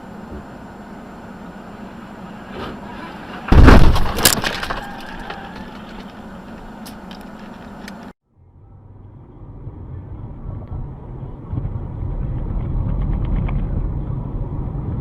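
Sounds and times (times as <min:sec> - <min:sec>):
road noise: 0:00.0 - 0:15.0
vehicle crash with breaking glass: 0:03.3 - 0:05.7.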